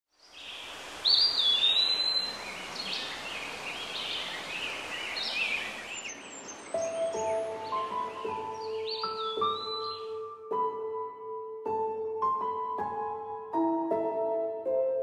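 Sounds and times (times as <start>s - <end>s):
soft hiss: 0.2s - 8.0s
birds singing: 0.2s - 10.3s.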